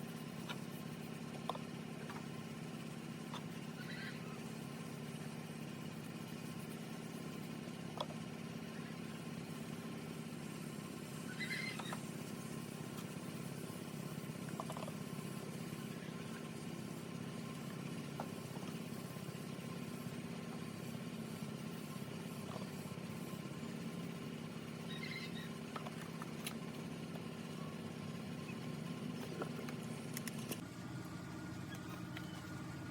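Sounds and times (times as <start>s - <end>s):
low motor hum: 0.0s - 32.9s.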